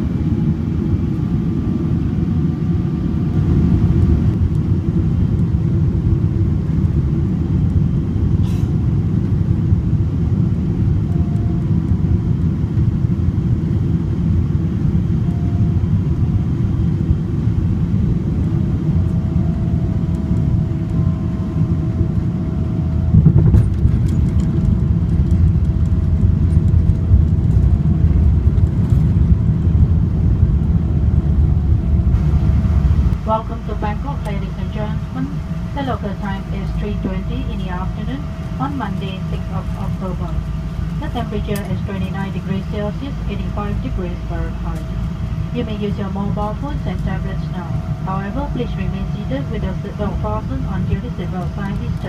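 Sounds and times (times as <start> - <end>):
airplane cabin rumble: 0.0 - 52.0.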